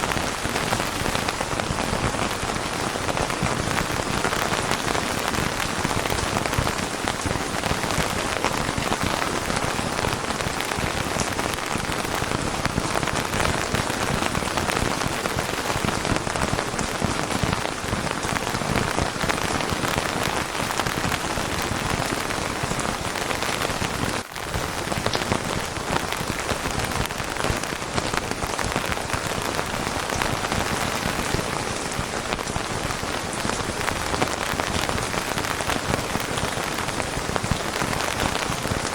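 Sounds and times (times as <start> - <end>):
dense rainfall: 0.0 - 38.9.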